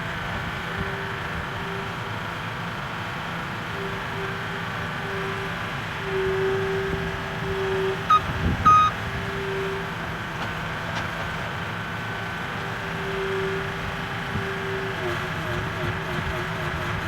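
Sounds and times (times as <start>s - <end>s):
engine running: 0.0s - 17.0s
short high beeps: 7.8s - 9.0s.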